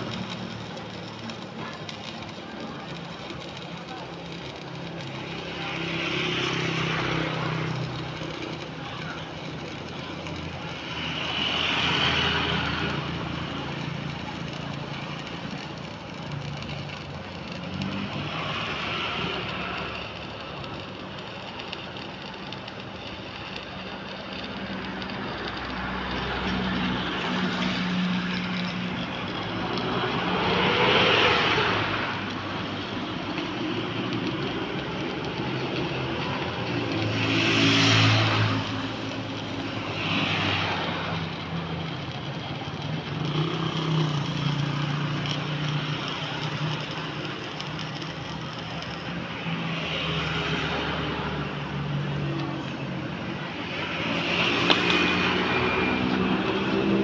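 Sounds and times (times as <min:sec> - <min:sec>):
road vehicles passing: 0:00.0 - 0:57.0.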